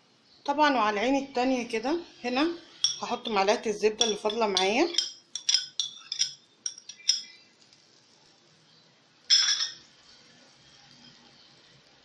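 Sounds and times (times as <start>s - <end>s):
metal spoon clinking on pan: 2.8s - 7.4s, 9.3s - 9.9s
utensil clattering on pan: 4.0s - 7.3s, 9.3s - 9.8s.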